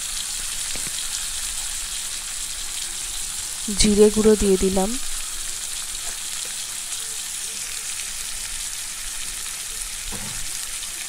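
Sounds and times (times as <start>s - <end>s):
potatoes sizzling in hot oil: 0.0s - 11.0s.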